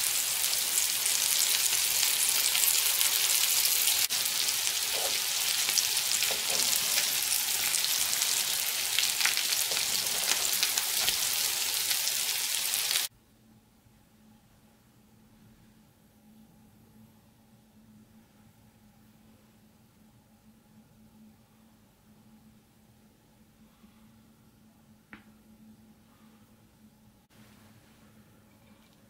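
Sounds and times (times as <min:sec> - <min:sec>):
patties sizzling in a pan: 0:00.0 - 0:13.1.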